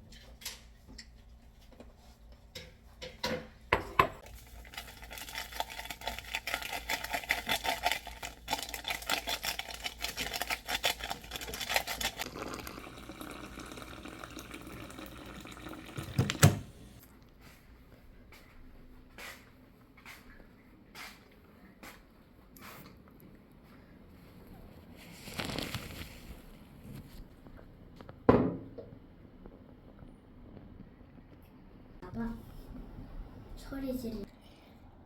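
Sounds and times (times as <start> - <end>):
clattering in a sink: 2.6 - 4.2, 15.8 - 17.0
water running into a sink: 12.2 - 17.0.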